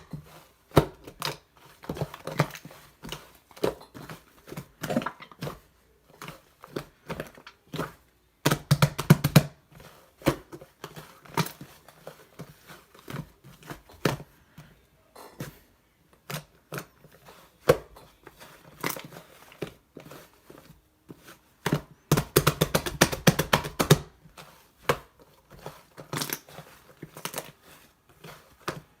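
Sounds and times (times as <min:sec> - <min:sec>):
slime squishing: 0:00.0 - 0:29.0.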